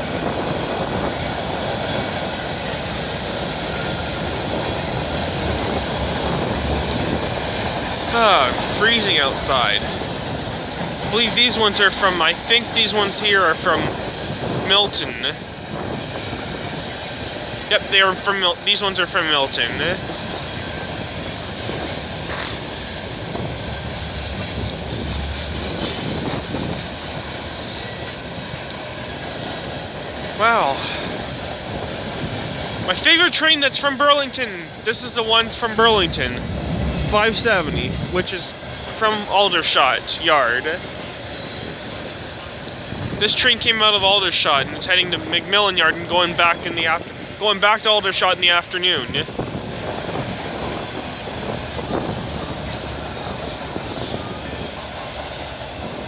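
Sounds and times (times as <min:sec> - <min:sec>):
freight train wheels on rails: 0:00.0 - 0:56.0.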